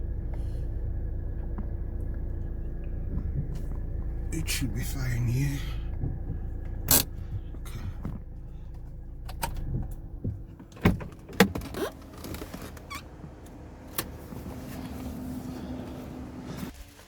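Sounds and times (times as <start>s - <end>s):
low rumble: 0.0s - 11.3s
clicks and knocks inside car: 0.1s - 15.0s.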